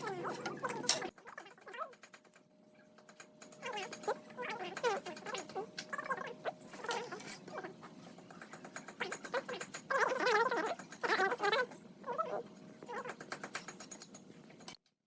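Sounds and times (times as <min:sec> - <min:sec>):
small animal crying: 0:03.6 - 0:07.9, 0:09.0 - 0:13.4.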